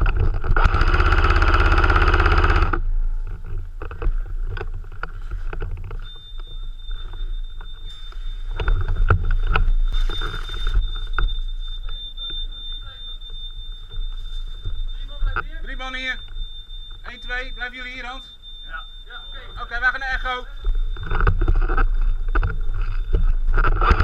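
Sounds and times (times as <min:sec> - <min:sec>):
high electronic beep tone: 0:05.0 - 0:24.0.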